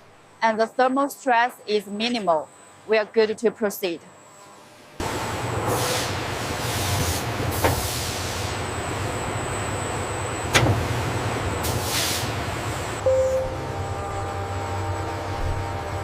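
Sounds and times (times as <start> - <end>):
factory machinery humming: 5.0 - 16.0.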